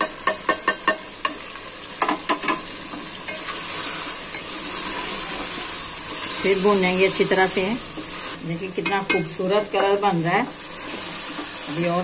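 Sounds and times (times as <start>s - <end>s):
utensils knocking against pot: 0.0s - 1.4s, 8.8s - 10.0s
food sizzling in a pot: 0.0s - 12.0s.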